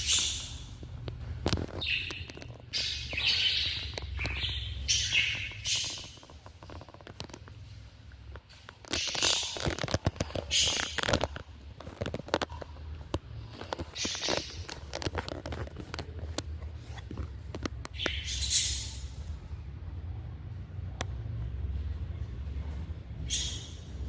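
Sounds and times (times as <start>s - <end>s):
parrots screeching: 0.0s - 0.7s, 1.8s - 6.3s, 8.9s - 11.2s, 18.0s - 19.1s, 23.3s - 23.9s.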